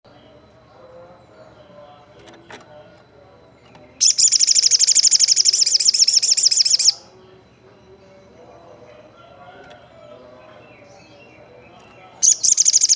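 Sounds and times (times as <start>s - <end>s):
bird singing high trill: 4.0s - 7.2s, 10.6s - 12.9s.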